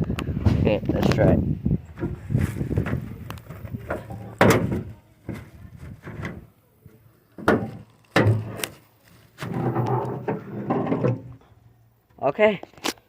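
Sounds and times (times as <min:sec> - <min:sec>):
knocks on truck body: 0:03.9 - 0:05.4.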